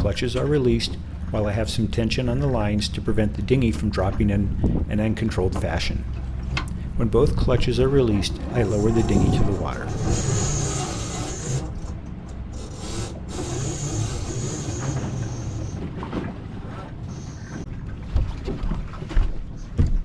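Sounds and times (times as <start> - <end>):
low rumble: 0.0 - 13.4
winch lines rubbing and rasping: 3.2 - 15.8.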